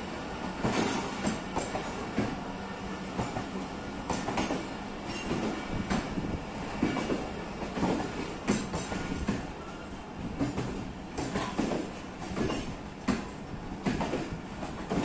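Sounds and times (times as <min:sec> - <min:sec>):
train coaches rumbling past: 0:00.0 - 0:15.0
wheels clacking over rail joints: 0:03.2 - 0:06.1, 0:06.7 - 0:09.8, 0:10.4 - 0:15.0.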